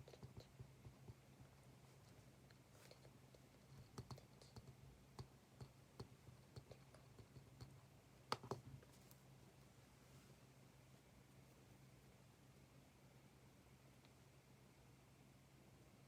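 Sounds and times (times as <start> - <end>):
low steady hum: 0.0 - 16.0
small clicks and taps: 2.5 - 8.9.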